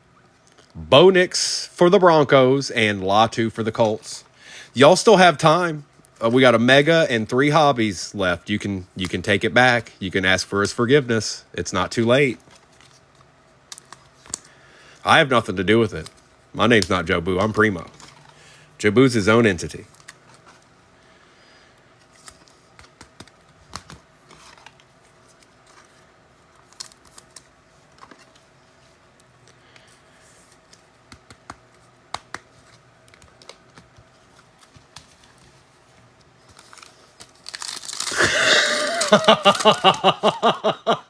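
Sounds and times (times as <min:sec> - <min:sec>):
foil wrappers crinkling: 0:36.4 - 0:40.5
man laughing: 0:38.1 - 0:41.0.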